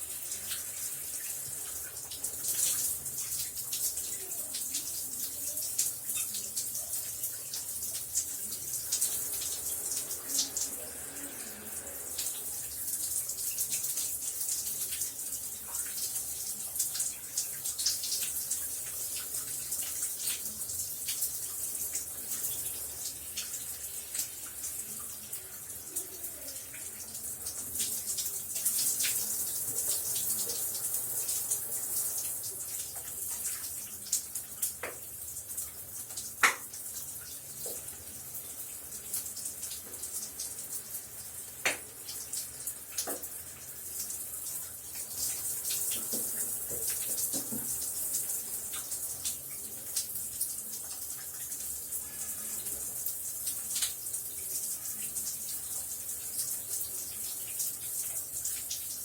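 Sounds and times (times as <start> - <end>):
shower spray hissing: 0.0 - 35.0.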